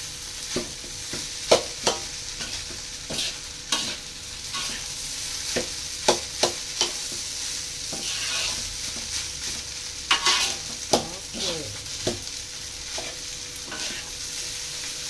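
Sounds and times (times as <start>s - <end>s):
fried rice sizzling in a pan: 0.0s - 15.0s
spatula scraping and knocking pan: 1.8s - 4.0s.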